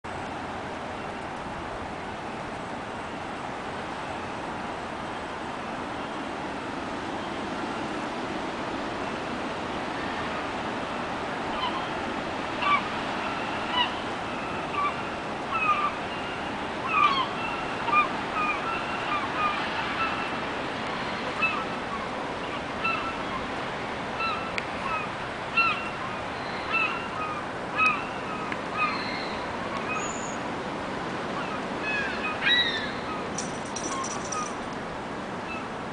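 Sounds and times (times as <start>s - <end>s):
gulls calling: 11.5s - 20.4s, 21.2s - 30.4s, 31.3s - 34.8s.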